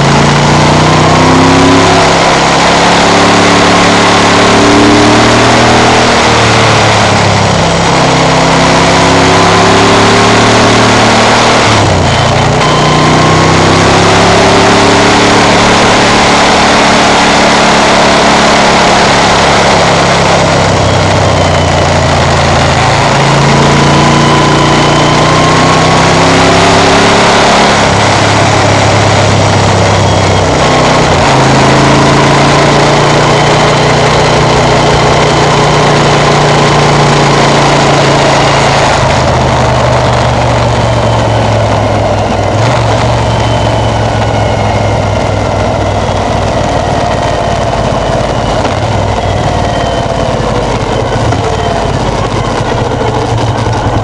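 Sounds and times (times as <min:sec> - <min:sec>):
v-twin motorcycle engine running: 0:00.0 - 0:54.0
heavy wind rush: 0:38.4 - 0:54.0.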